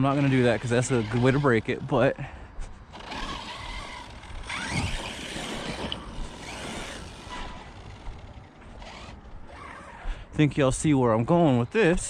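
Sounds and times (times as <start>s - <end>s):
electric motor whining: 0.0s - 2.1s, 2.9s - 10.1s.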